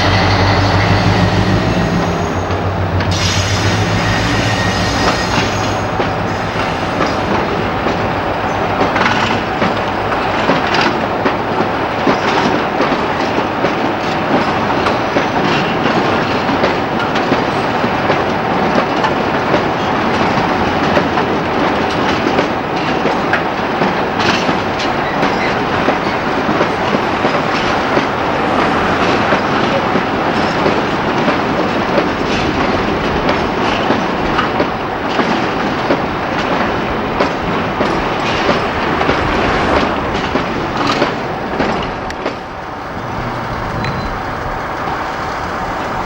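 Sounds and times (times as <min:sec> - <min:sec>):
locomotive diesel engine: 0:00.0 - 0:10.3, 0:27.0 - 0:32.6, 0:38.2 - 0:46.0
train wagons rumbling: 0:00.0 - 0:46.0
wheel clatter over rail joints: 0:01.2 - 0:46.0.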